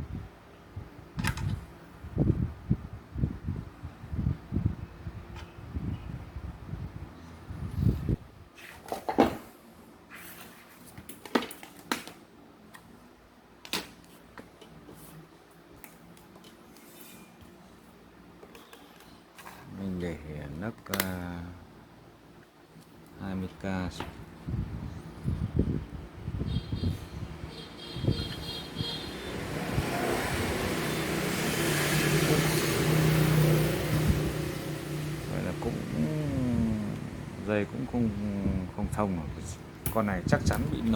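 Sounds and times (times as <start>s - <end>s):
vehicle passing: 27.7s - 38.3s.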